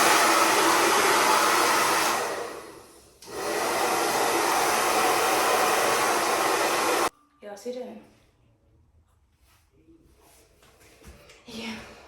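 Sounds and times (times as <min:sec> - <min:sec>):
hair dryer blowing: 0:00.0 - 0:07.1.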